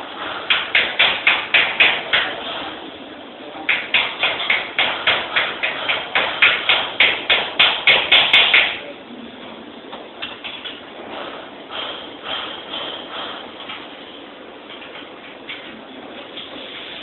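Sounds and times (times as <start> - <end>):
rapid hammer blows: 0.2 - 2.7, 3.7 - 8.8, 11.1 - 13.9.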